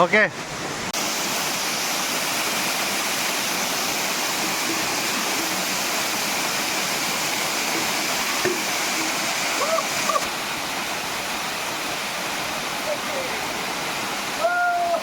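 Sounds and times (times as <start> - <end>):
water pouring down waterfall: 0.7 - 15.0.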